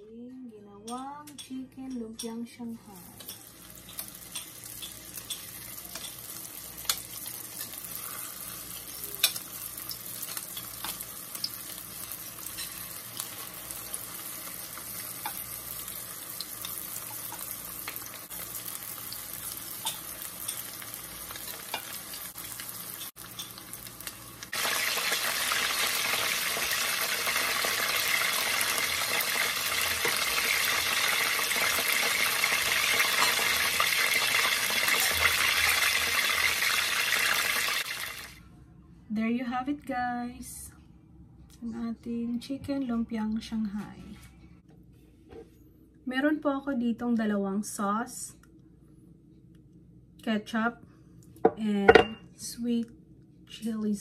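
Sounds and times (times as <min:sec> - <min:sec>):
food deep-frying in oil: 0:03.0 - 0:38.4.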